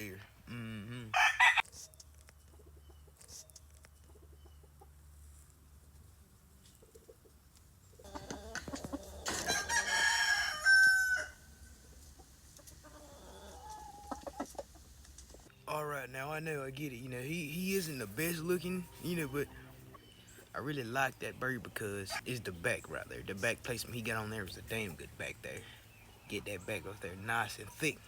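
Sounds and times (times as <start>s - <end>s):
rooster crowing: 1.1s - 1.6s, 9.2s - 11.5s.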